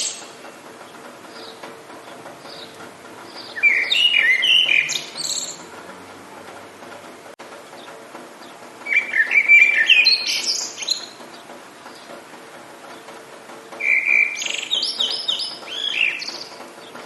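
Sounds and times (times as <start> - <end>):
songbird chirping: 0.0 - 5.8, 7.8 - 12.2, 13.8 - 17.0
rain hissing: 0.0 - 17.0.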